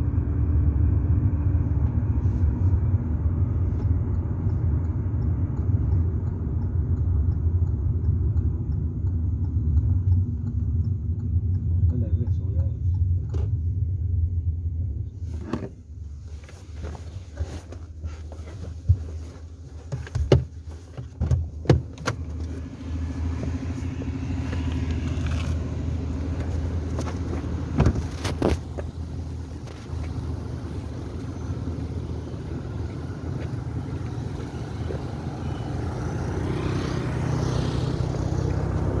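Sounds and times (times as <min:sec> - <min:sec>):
vehicle engine humming: 0:00.0 - 0:39.0.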